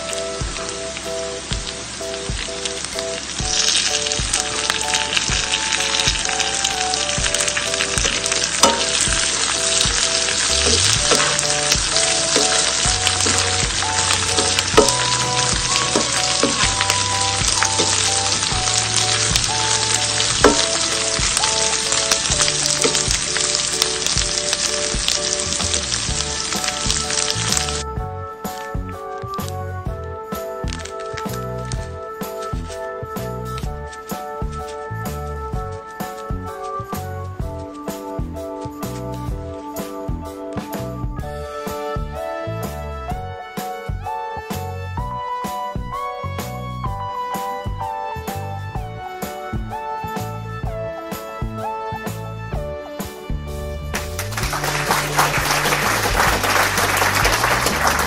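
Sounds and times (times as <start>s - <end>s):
food sizzling in hot oil: 0.0s - 27.8s.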